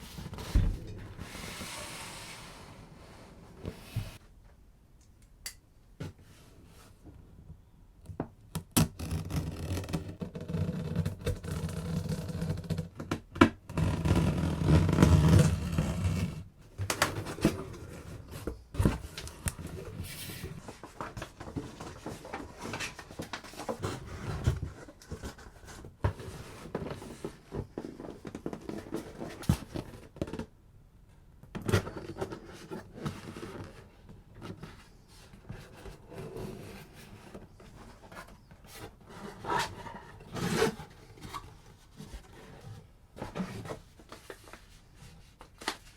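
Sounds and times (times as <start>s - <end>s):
cardboard scraping and rubbing: 31.8s - 45.7s.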